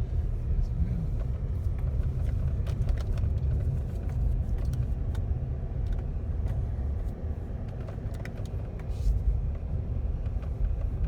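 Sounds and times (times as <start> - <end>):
car driving slowly: 0.0 - 11.0.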